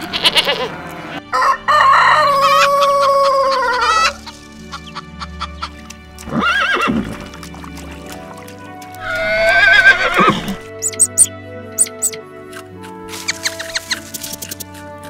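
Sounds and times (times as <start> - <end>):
background music: 0.0 - 15.0
horse whinnying: 6.2 - 7.3, 9.0 - 12.2.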